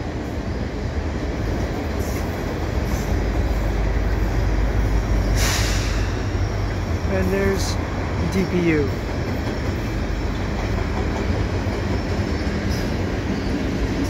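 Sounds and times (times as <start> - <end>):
diesel locomotive drone: 0.0 - 14.0
steel wheels rumbling on rail: 0.0 - 14.0
brief hissing rush: 5.3 - 6.2.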